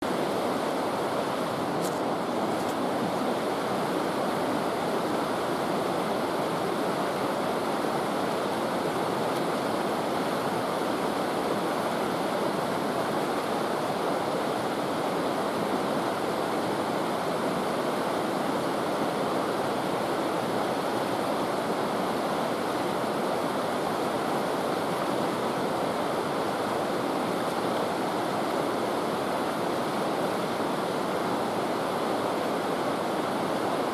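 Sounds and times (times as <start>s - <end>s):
river water rushing: 0.0s - 33.9s.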